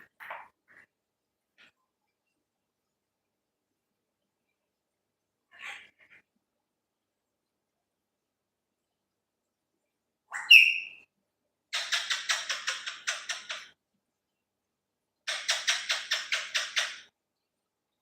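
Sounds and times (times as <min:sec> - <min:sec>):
parrot whistling: 0:10.4 - 0:11.0.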